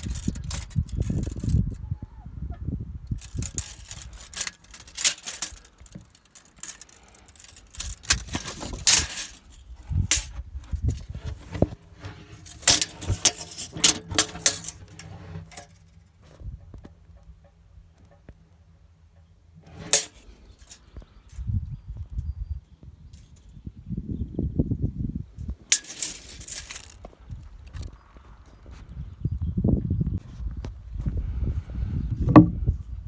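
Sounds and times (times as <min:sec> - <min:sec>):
scraping strokes on wood: 0:11.0 - 0:15.8
clicks and knocks on wood: 0:32.3 - 0:32.6.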